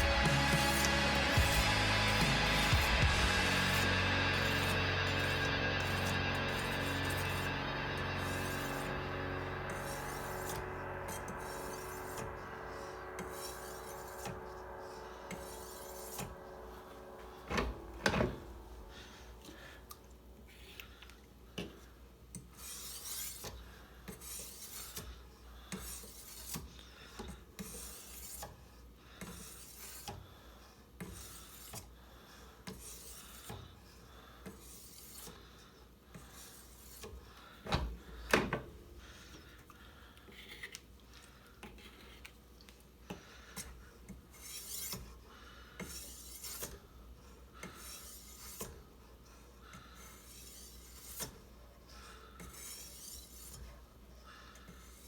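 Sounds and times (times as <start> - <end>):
sharpening stone rasping on knife: 22.6 - 23.5, 24.1 - 25.1, 40.3 - 40.8, 44.3 - 45.1, 45.8 - 46.8, 50.0 - 51.4, 52.4 - 53.7.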